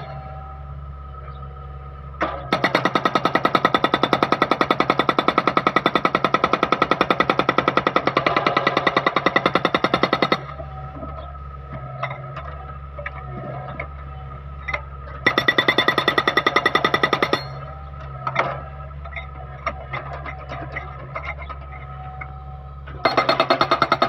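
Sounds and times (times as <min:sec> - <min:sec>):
diesel engine running: 0:00.0 - 0:24.0
hydraulic breaker hammering: 0:02.2 - 0:10.6, 0:15.2 - 0:21.9, 0:22.9 - 0:24.0.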